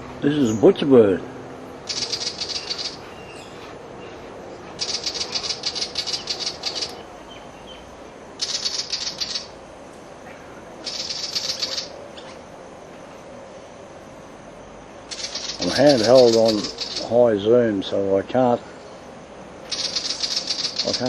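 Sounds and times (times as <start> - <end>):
bird's harsh rattling chatter: 1.8 - 7.5, 8.4 - 9.6, 10.7 - 12.4, 15.1 - 17.2, 19.6 - 21.0.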